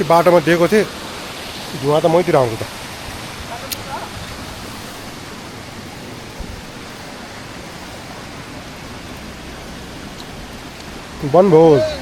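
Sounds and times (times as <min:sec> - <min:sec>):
waterfall rushing: 0:00.0 - 0:12.0
low thump: 0:06.4 - 0:06.6.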